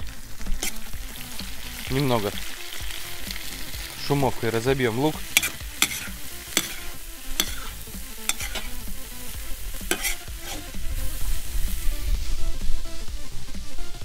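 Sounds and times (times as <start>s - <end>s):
onions sizzling in oil: 0.0s - 14.0s
metal spoon scraping a pot: 0.6s - 0.9s, 5.0s - 8.9s, 9.8s - 10.8s.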